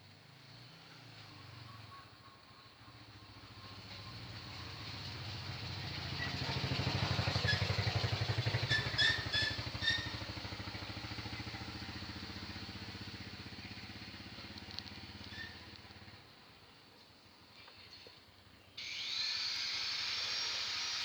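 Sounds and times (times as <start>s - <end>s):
motorcycle engine passing: 2.9s - 16.4s.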